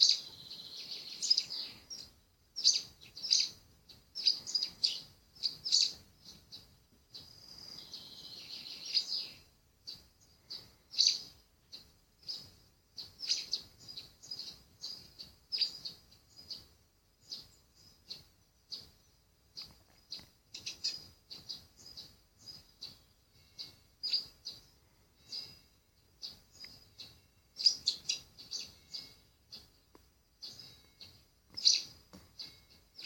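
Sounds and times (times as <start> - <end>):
songbirds chirping: 0.0 - 33.0.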